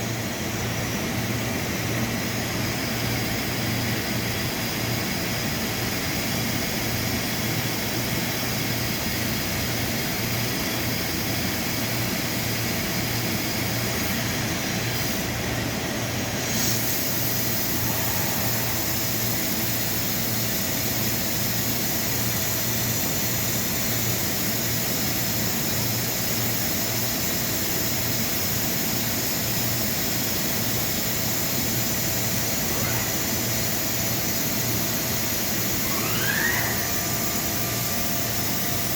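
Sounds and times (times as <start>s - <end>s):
machining center mechanical hum: 0.0s - 38.9s
steady machine tones: 10.0s - 24.1s, 29.4s - 38.9s
high hiss: 16.4s - 21.8s.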